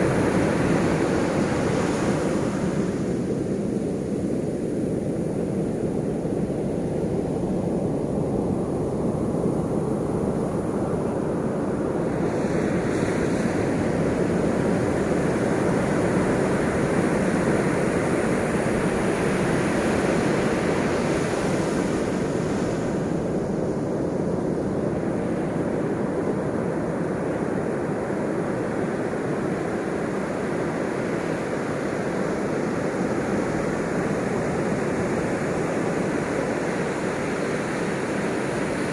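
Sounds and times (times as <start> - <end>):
ocean waves washing ashore: 0.0 - 38.9.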